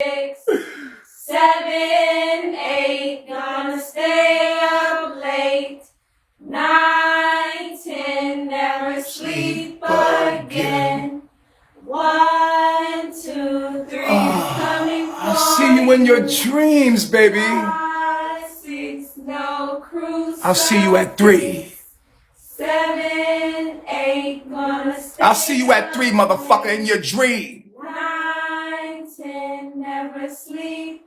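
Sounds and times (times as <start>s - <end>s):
children singing together: 9.1s - 11.2s, 13.3s - 16.2s
lower voice singing: 9.2s - 11.2s, 13.9s - 17.8s, 20.4s - 21.8s.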